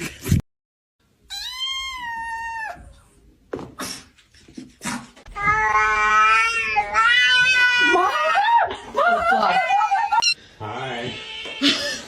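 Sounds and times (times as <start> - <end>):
cat meowing and yowling: 1.3 - 3.0, 5.4 - 8.6.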